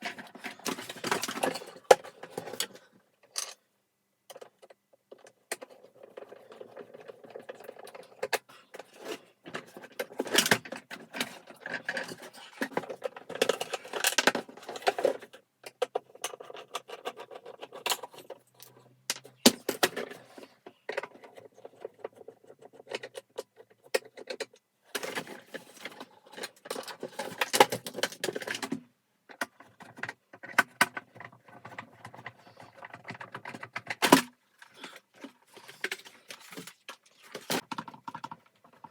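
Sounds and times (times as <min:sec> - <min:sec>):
clinking of parts and tools: 0:00.0 - 0:03.6.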